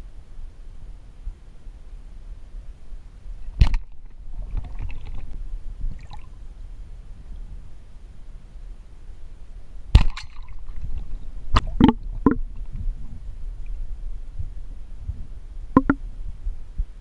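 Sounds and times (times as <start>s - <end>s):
low muffled water rumble: 0.0s - 17.0s
sharp knocks and clicks: 11.6s - 12.4s, 15.8s - 16.0s.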